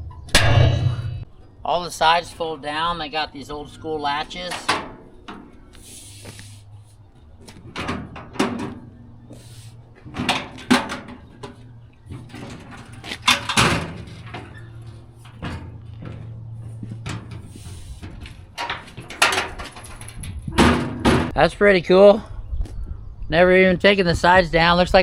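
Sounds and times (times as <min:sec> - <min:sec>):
knocks and clacks of panels: 0:07.4 - 0:09.0, 0:10.0 - 0:21.4.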